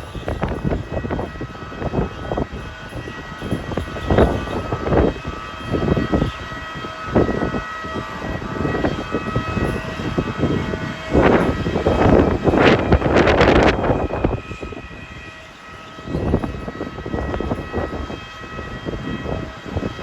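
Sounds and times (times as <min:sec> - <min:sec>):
gusty wind buffeting microphone: 0:00.0 - 0:20.0
high machinery whine: 0:00.0 - 0:20.0.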